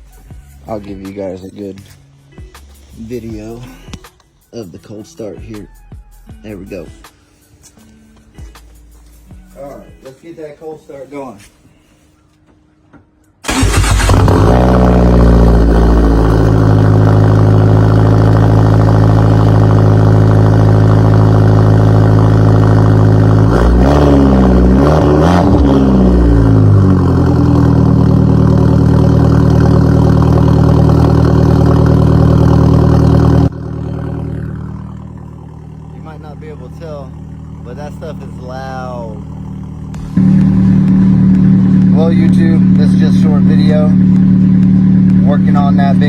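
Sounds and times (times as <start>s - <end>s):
car engine starting and idling: 13.3s - 46.0s.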